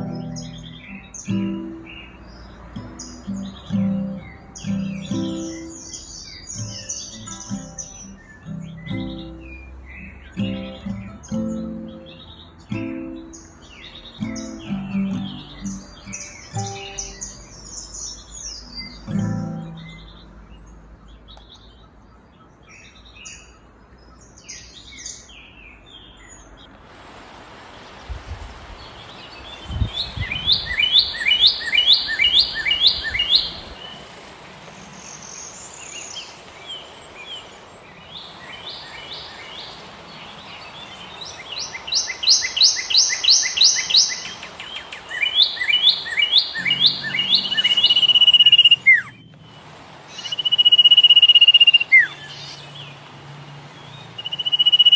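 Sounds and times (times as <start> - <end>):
bird long steady whistle: 30.1 - 34.0, 41.5 - 52.5, 54.2 - 54.9
bird falling chirps: 34.7 - 49.5.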